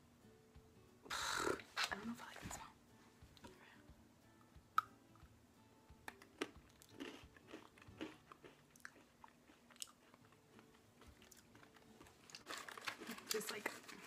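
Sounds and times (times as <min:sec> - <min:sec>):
person chewing crunchy bread stick: 0:06.1 - 0:13.1.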